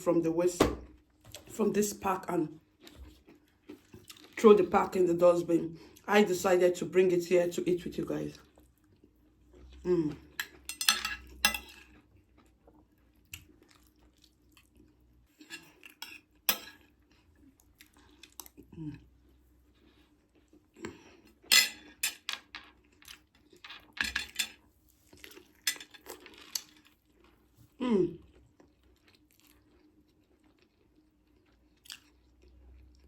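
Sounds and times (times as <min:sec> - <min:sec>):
cutlery clicking on a plate: 0:10.4 - 0:11.7.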